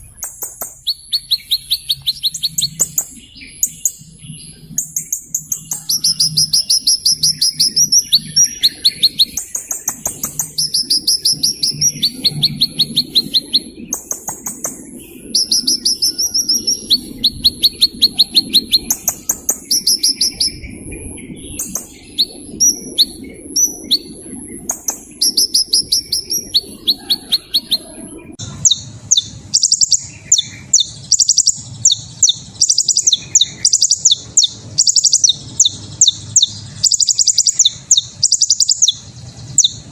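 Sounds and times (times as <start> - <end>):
small bird trilling: 0.0 - 39.9.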